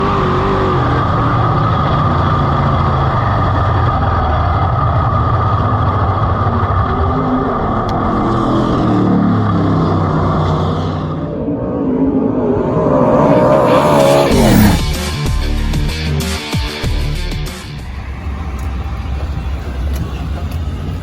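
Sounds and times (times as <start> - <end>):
race car engine at high revs: 0.0 - 15.3.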